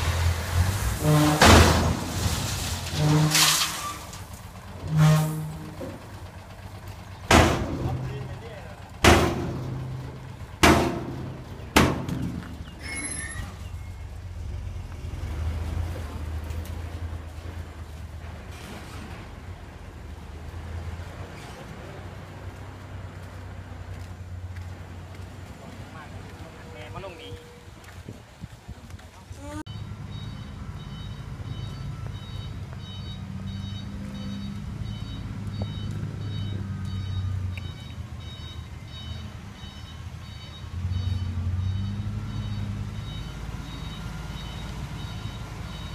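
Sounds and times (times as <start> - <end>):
diesel engine running: 0.0 - 27.0
truck reversing alarm beeping: 3.0 - 14.2, 29.7 - 45.9.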